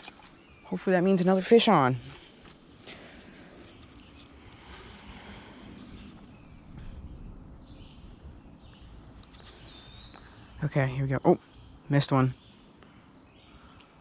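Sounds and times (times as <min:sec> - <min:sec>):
faint low rumble: 0:01.9 - 0:12.8.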